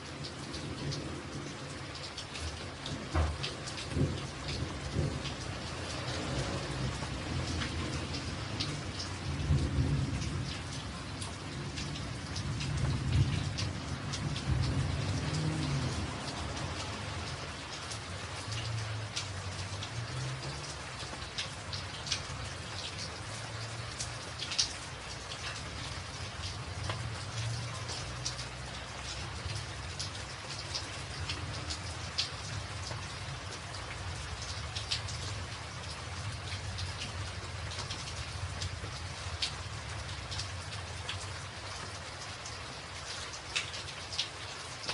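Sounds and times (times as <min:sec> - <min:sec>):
rain drumming on a tin roof: 0:00.0 - 0:44.9
thunder rumbling: 0:02.8 - 0:17.5.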